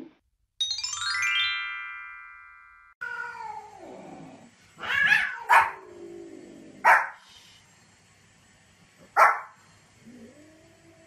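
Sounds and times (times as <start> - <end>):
bright chime ringing: 0.6 - 3.0
dog yapping: 4.8 - 5.8, 9.2 - 9.5.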